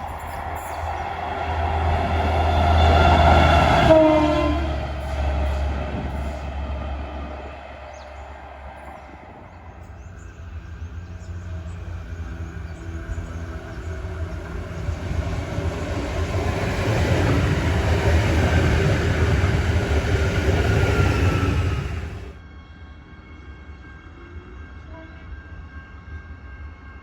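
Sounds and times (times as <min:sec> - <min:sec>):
electric train rumble and motor hum: 0:00.0 - 0:27.0.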